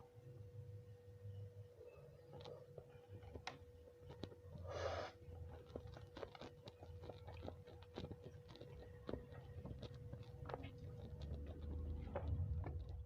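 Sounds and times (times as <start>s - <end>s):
faint steady hum: 0.0s - 13.0s
chewing clicks: 5.4s - 13.0s.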